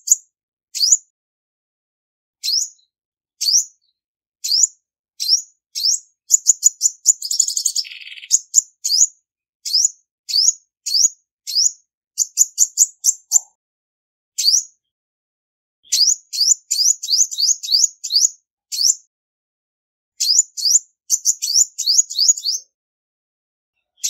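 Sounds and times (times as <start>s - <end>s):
bird chirping: 0.8s - 1.0s, 2.4s - 13.6s, 14.4s - 14.9s, 15.8s - 19.0s, 20.2s - 22.7s, 23.8s - 24.0s
buzzy bird trill: 0.8s - 1.0s, 2.4s - 2.8s, 4.4s - 13.5s, 15.9s - 19.0s, 20.2s - 22.7s.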